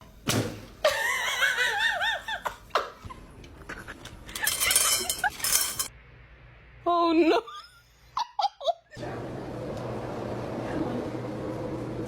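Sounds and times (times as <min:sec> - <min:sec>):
high-pitched laughter: 0:07.2 - 0:09.0.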